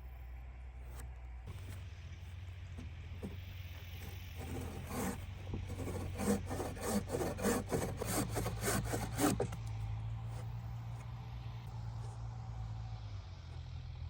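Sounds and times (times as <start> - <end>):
low engine hum: 0.0 - 14.0
hand saw on wood: 4.0 - 9.6.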